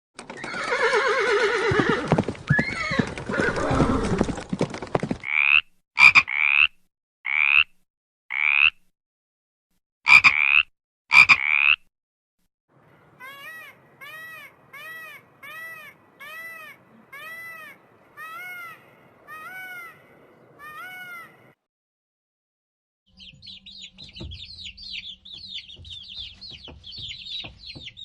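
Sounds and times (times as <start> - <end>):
horse whinnying: 0.3 - 4.4.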